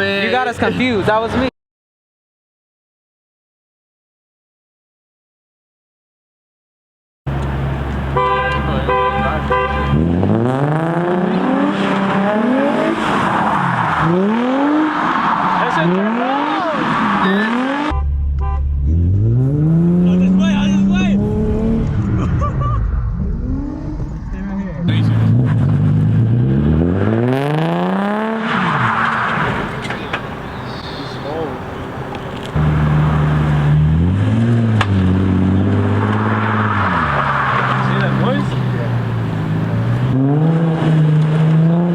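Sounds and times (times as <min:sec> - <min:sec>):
sports car engine revving: 0:07.3 - 0:22.6, 0:23.2 - 0:41.9
car horn honking: 0:08.1 - 0:10.4, 0:17.2 - 0:19.2.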